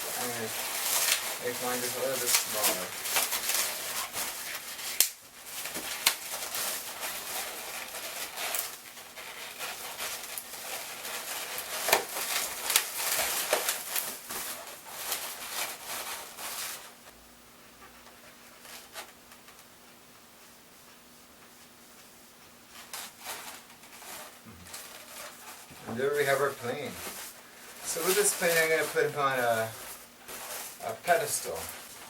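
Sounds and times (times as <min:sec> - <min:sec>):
balloons rubbing and squeaking: 0:00.0 - 0:17.0, 0:22.8 - 0:32.0.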